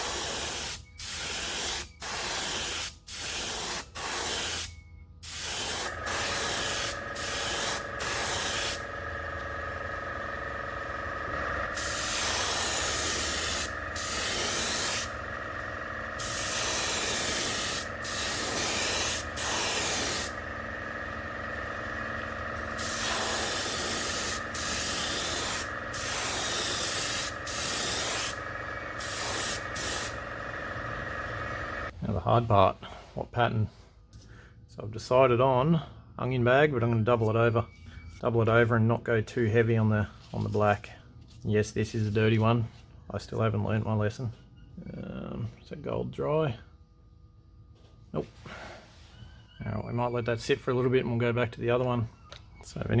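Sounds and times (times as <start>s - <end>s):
airbrush spraying hissing bursts: 0.0s - 9.0s, 10.8s - 20.8s, 22.0s - 31.9s
steady hum: 0.0s - 32.0s.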